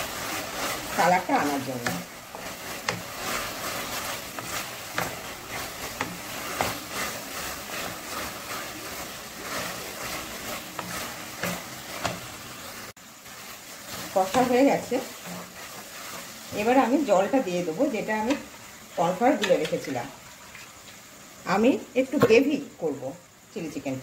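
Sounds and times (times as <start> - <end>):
spatula scraping a pan: 0.0 - 16.8
vegetables sizzling in sauce: 0.0 - 24.0.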